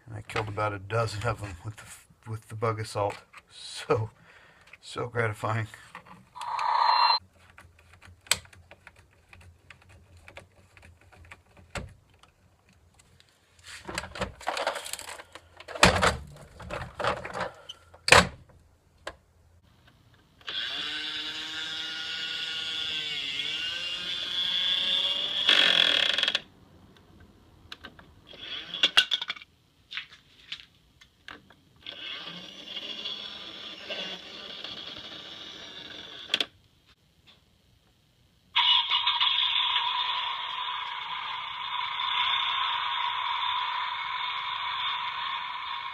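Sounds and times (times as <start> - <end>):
small electric motor whirring: 6.4 - 7.2, 20.4 - 25.9.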